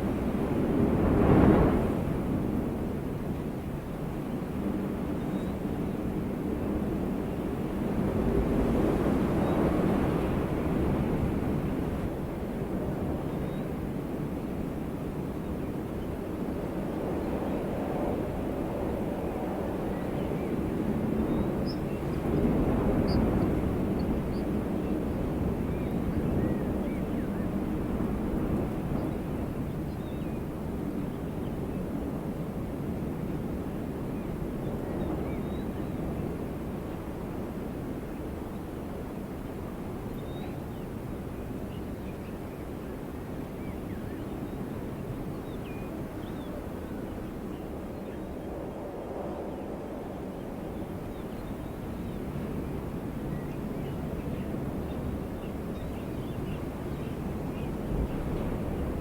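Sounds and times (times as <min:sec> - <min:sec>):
low wind blowing: 0:45.1 - 0:59.0.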